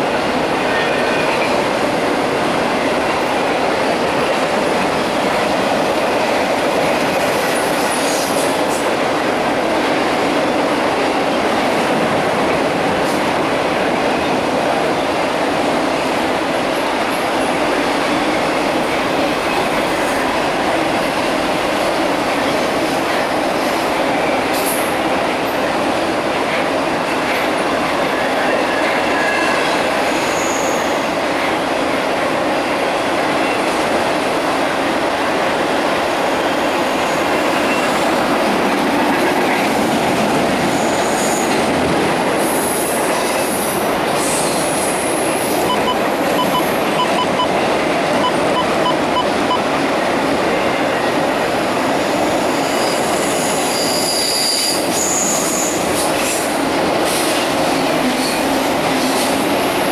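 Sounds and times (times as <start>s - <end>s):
freight train wheels rumbling: 0.0s - 59.9s
high-pitched wheel squeals: 52.6s - 55.8s.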